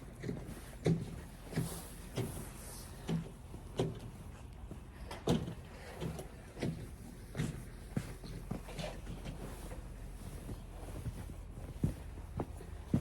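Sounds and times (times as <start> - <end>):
footsteps in snow: 7.4 - 13.0.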